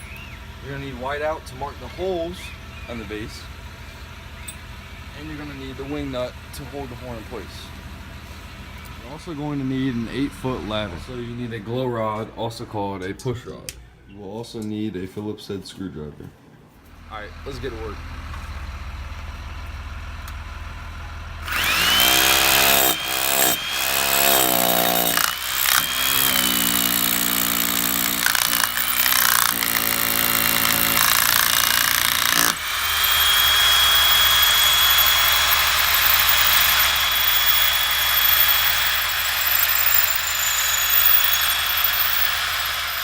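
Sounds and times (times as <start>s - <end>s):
power drill boring a hole: 21.4s - 43.0s.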